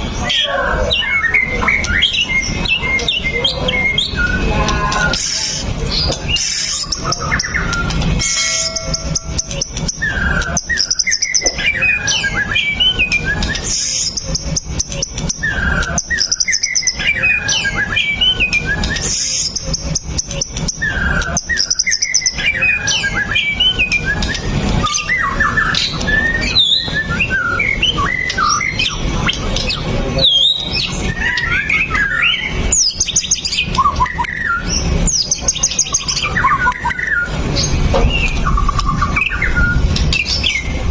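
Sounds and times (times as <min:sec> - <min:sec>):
high bird chips: 0:00.0 - 0:40.9
bird singing whistled phrases: 0:00.2 - 0:40.9.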